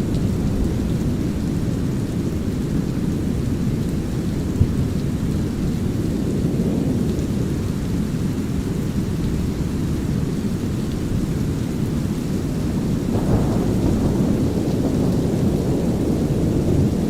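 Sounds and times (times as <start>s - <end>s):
light rain: 0.0s - 17.0s
low thunder: 12.6s - 17.0s.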